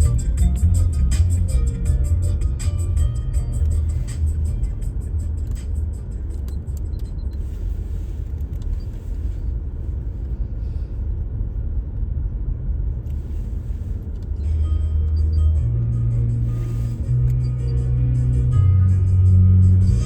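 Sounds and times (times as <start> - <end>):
music playing: 0.0 - 6.4, 14.4 - 20.0
car rumbling on the move: 0.0 - 20.0
low bass note: 14.4 - 20.0.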